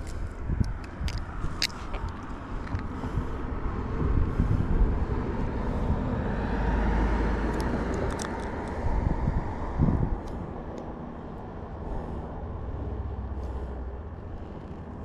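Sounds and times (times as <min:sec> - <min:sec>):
passing vehicle rumble: 0:00.0 - 0:15.0.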